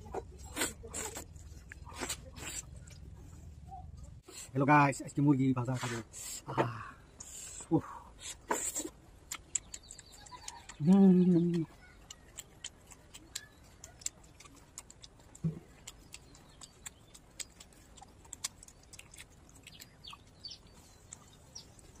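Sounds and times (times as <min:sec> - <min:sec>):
chewing and lip-smacking: 0:08.4 - 0:22.0.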